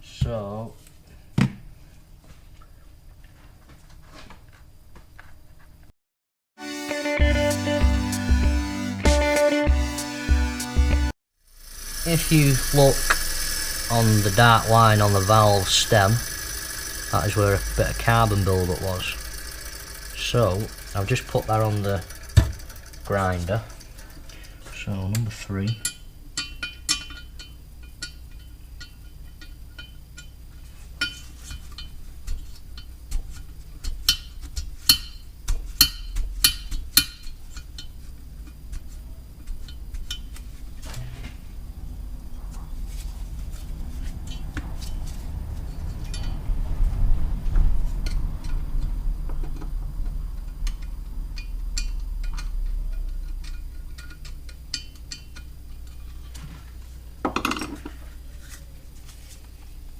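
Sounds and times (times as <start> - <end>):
sharp metal clicks: 11.8 - 30.3
metal valve clinking and tapping: 25.1 - 30.4, 31.0 - 32.0, 33.8 - 35.2, 50.5 - 56.0.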